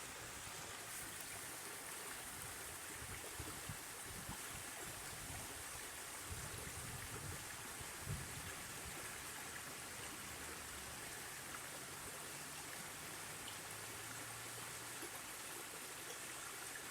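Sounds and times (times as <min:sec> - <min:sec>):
water rushing: 0:00.0 - 0:06.4.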